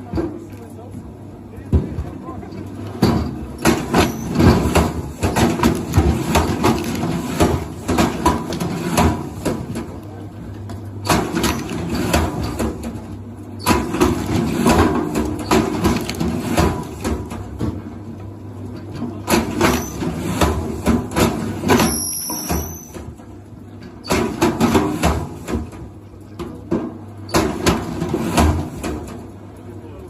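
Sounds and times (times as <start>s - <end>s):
objects knocking and clattering: 1.7s - 10.0s, 13.7s - 17.9s.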